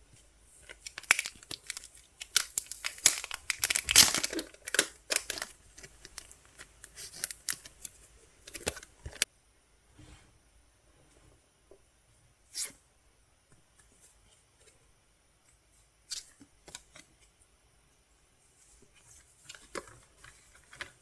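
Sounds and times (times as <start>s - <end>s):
packaging torn and crinkled: 0.8s - 7.8s.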